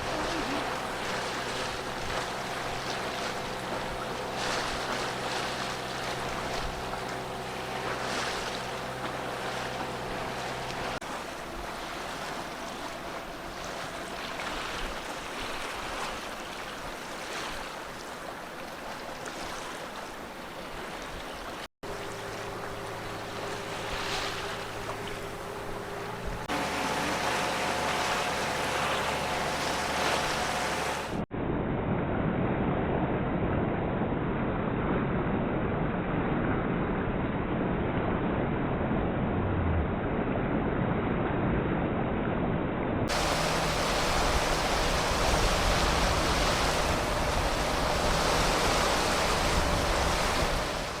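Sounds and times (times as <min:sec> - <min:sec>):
wind and sea water rushing: 0:00.0 - 0:51.0
wind buffeting microphone: 0:21.9 - 0:51.0.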